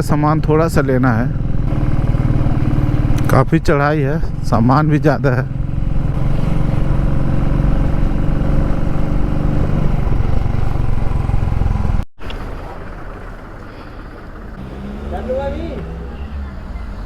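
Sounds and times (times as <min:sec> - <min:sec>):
motorcycle engine climbing: 0:00.0 - 0:17.0
road and wind noise: 0:00.0 - 0:17.0.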